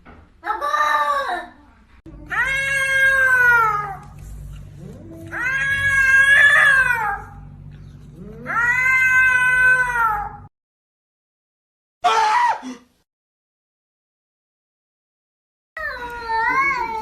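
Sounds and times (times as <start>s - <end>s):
faint low hum: 1.5s - 10.5s
cat yowling: 2.3s - 4.0s, 5.2s - 7.4s, 8.2s - 10.5s.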